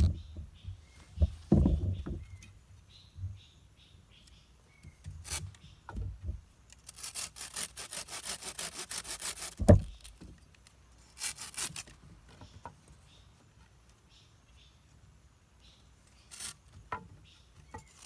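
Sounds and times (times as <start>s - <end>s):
hand saw cutting wood: 5.2s - 5.5s, 6.8s - 10.2s, 11.0s - 12.0s
heavy thud: 9.6s - 10.0s.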